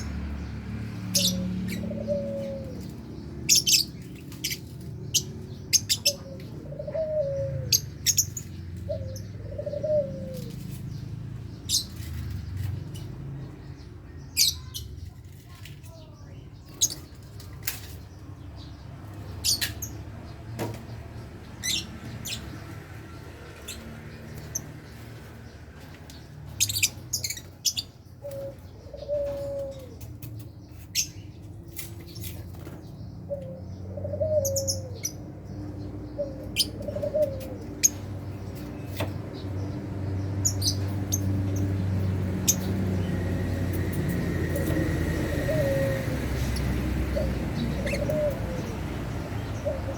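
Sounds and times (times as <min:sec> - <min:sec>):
birds shrill chirps: 0:00.0 - 0:49.9
bird cooing call: 0:01.1 - 0:02.9, 0:05.7 - 0:08.3, 0:08.9 - 0:10.6, 0:28.2 - 0:30.1, 0:33.2 - 0:35.2, 0:36.1 - 0:38.0, 0:44.5 - 0:49.9.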